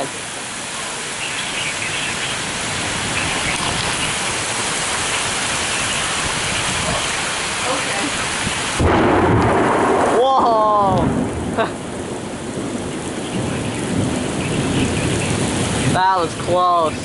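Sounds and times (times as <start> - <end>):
heavy rain pouring: 0.0 - 17.0
close thunderclap: 8.4 - 17.0.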